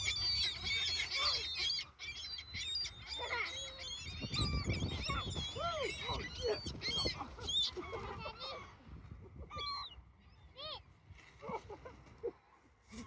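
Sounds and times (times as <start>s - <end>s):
seagulls squawking: 0.0s - 8.6s.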